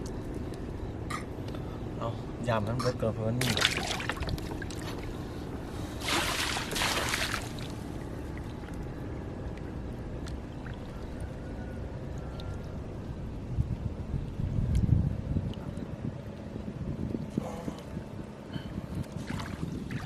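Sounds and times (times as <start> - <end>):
steady low rumble: 0.0 - 20.0
water splashing and pouring: 3.4 - 4.8, 6.0 - 7.8.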